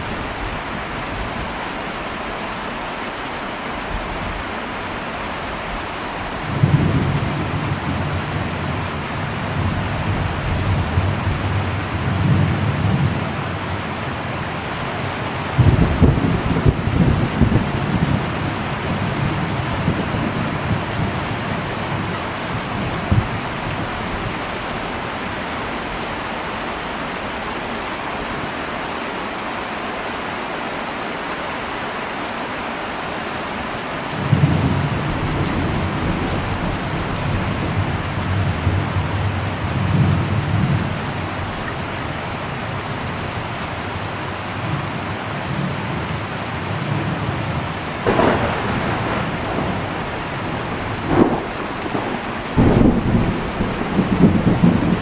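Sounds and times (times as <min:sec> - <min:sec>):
heavy rain on a metal roof: 0:00.0 - 0:55.0
thunder rumbling: 0:06.4 - 0:24.8, 0:34.2 - 0:41.9, 0:47.0 - 0:55.0
sharp thunder crack: 0:15.5 - 0:21.1, 0:48.0 - 0:55.0.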